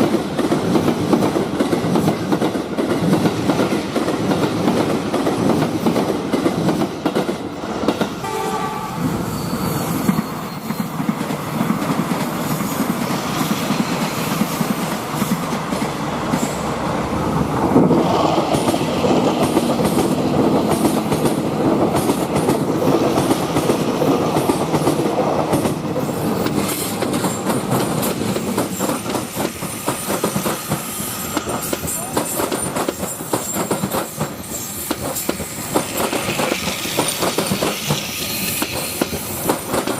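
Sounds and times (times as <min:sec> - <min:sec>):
train clattering on track: 0:00.0 - 0:39.9
horn-like tone: 0:08.2 - 0:10.7.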